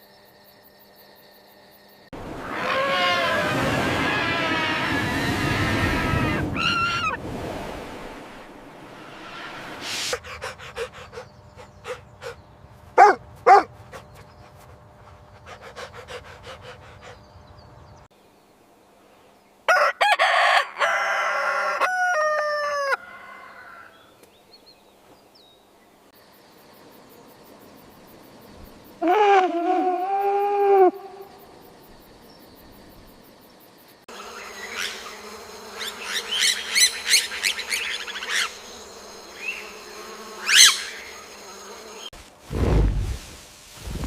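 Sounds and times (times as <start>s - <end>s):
animal calls: 2.4s - 7.2s, 40.4s - 41.4s
loud calls falling in pitch: 2.4s - 7.2s.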